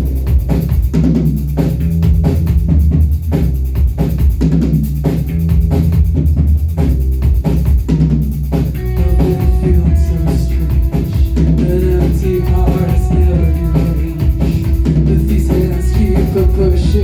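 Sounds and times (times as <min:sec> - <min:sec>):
drum kit: 0:00.0 - 0:17.0
heavy bass: 0:00.0 - 0:17.0
live rock band: 0:06.8 - 0:17.0
held higher notes: 0:08.8 - 0:17.0.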